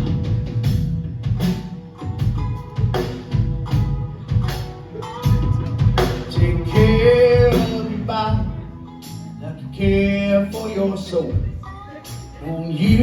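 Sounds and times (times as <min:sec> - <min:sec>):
drum kit steady beat: 0:00.0 - 0:13.0
live folk-rock band: 0:00.0 - 0:13.0.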